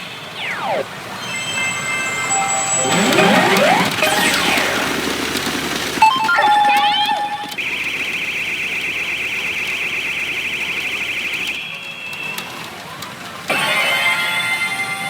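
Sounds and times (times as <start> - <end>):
fast-warbling electronic alarm tone: 0.2 - 8.9.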